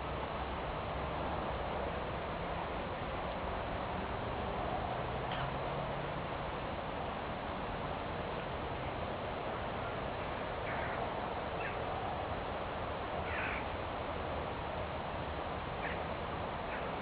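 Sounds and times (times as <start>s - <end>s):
steady background hiss: 0.0s - 17.0s
short bird calls: 13.3s - 13.7s.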